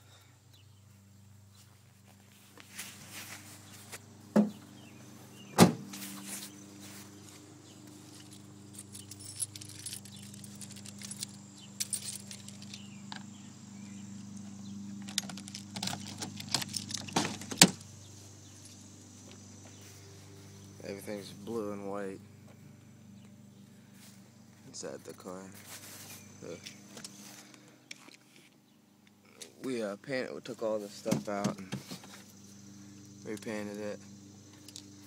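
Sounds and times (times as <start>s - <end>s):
steady low hum: 0.0s - 35.0s
jingling clatter: 8.0s - 13.4s, 15.0s - 17.8s.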